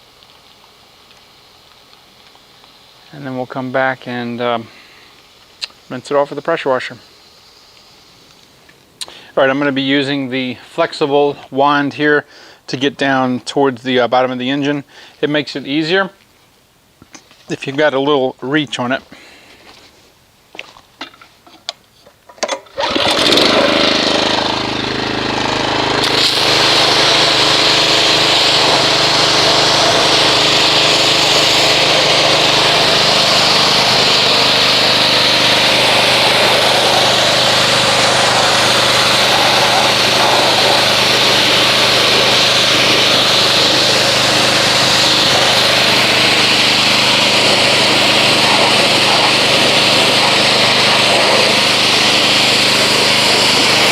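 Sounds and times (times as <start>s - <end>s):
water jet hissing: 0.0s - 12.6s, 22.8s - 53.9s
pressure washer motor humming: 22.8s - 53.9s.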